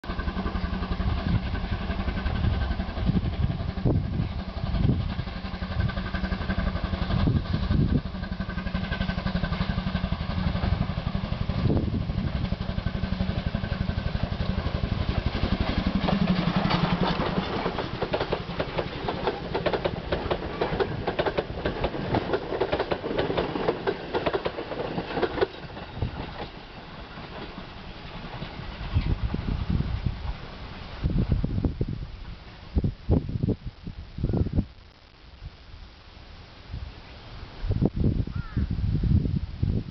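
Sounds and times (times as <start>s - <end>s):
train clattering over track: 0.0s - 29.5s
train machinery pulsing: 0.0s - 30.9s.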